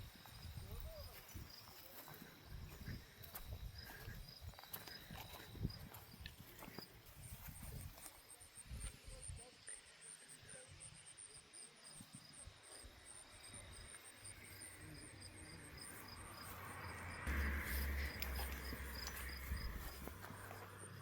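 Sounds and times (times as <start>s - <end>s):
insects chirping: 0.0s - 21.0s
wind buffeting microphone: 2.5s - 6.5s, 17.3s - 20.4s.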